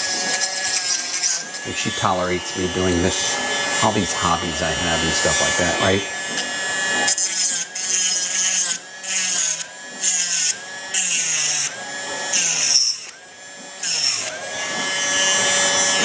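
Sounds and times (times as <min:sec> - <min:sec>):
rotary tool whine: 0:00.0 - 0:16.0.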